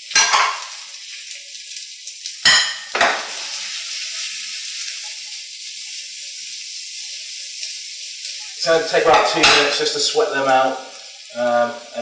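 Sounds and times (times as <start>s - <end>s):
onions sizzling in oil: 0.0s - 12.0s
utensil clanging on pan: 0.1s - 0.8s, 2.4s - 3.4s, 9.1s - 9.9s.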